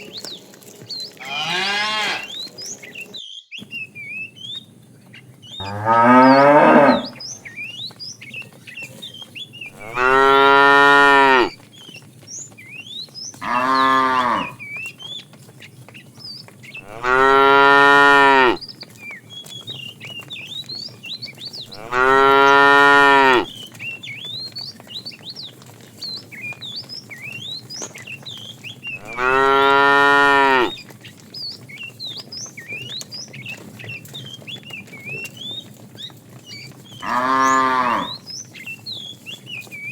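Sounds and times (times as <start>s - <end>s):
cow mooing: 1.2s - 2.4s, 5.6s - 7.2s, 9.7s - 11.5s, 13.4s - 14.6s, 16.8s - 18.6s, 21.7s - 23.5s, 29.0s - 30.8s, 37.0s - 38.2s.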